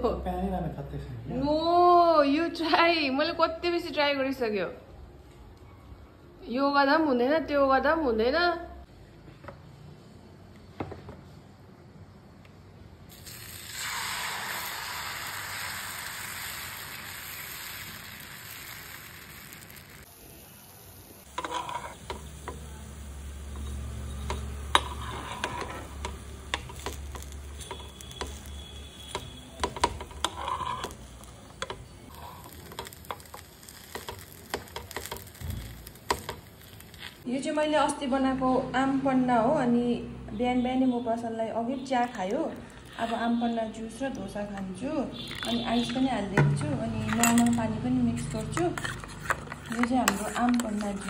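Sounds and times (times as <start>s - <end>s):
batter sizzling on a hot pan: 13.1s - 37.3s
spatula scraping and tapping pan: 21.4s - 22.6s, 23.5s - 35.4s, 48.2s - 51.0s.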